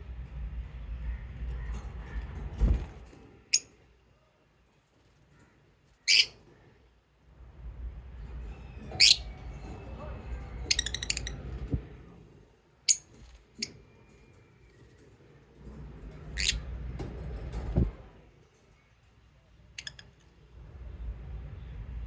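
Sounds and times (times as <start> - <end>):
lovebirds chirping and clicking: 6.0 - 6.4, 8.5 - 11.8, 16.0 - 17.1, 19.7 - 20.4
low thumps of birds moving: 15.6 - 18.2.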